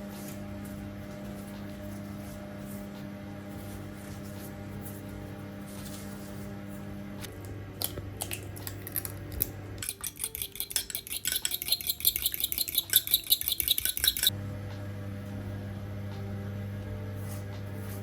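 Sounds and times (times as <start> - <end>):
metal utensil clinking against dish: 9.8 - 14.3.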